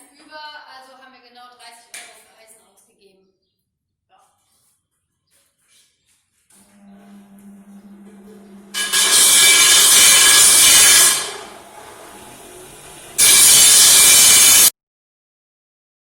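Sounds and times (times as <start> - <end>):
power tool grinding steel: 6.6 - 14.7.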